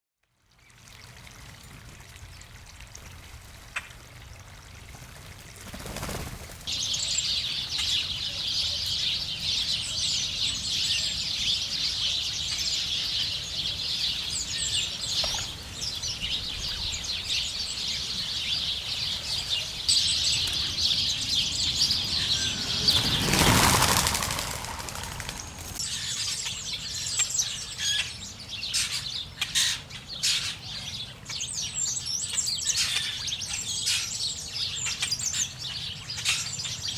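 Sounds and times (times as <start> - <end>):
flock of small birds chirping: 5.7 - 36.9
whir of bird wings: 20.4 - 25.8.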